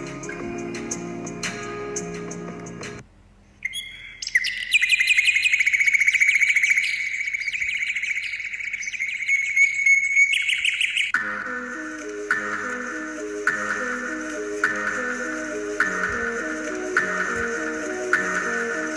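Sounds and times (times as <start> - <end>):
bird singing fast trill: 3.6 - 11.2.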